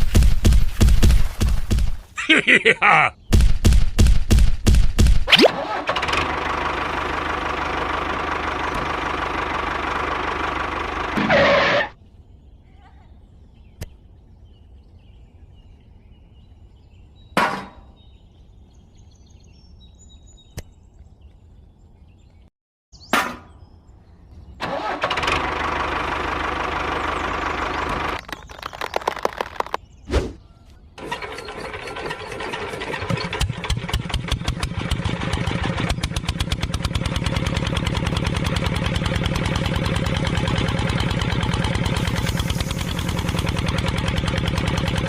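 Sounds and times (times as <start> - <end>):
small tractor motor running: 5.5 - 12.0, 24.6 - 29.8, 31.0 - 45.0.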